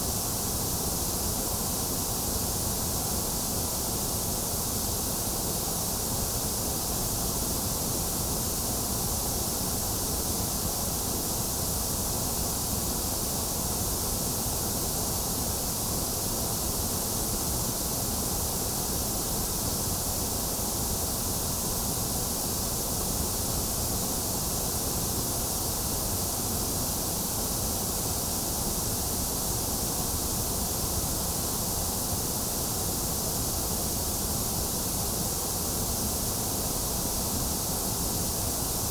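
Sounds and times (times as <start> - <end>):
steady white noise hiss: 0.0 - 38.9.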